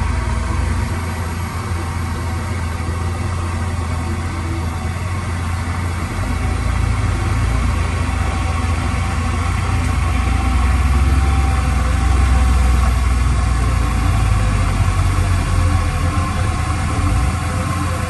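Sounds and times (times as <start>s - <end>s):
diesel engine rumbling: 0.0s - 18.0s.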